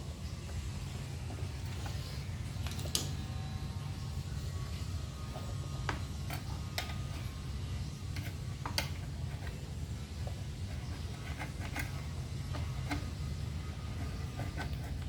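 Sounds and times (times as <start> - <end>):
steady low hum: 0.0 - 15.0
light clicks and taps of tools: 8.1 - 9.6.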